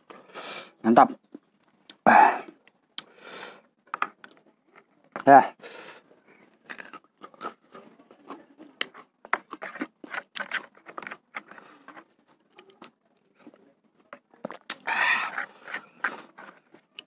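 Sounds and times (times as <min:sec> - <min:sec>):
mouth chewing and crunching: 0:01.3 - 0:03.2, 0:06.3 - 0:17.0
metal spoon scraping plastic bowl: 0:08.9 - 0:12.1.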